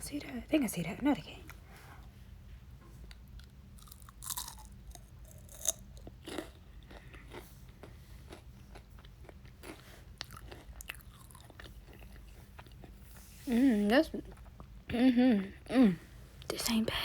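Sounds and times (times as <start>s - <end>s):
person chewing food: 3.1s - 13.2s.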